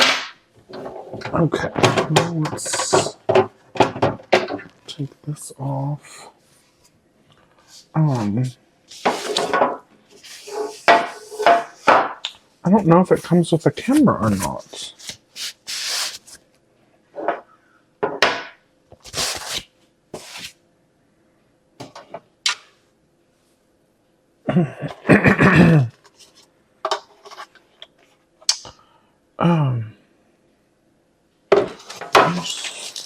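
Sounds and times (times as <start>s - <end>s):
plastic packaging rustling: 12.8s - 16.4s, 19.0s - 20.6s, 31.8s - 33.0s
person humming or mumbling: 24.5s - 25.9s, 29.4s - 30.0s.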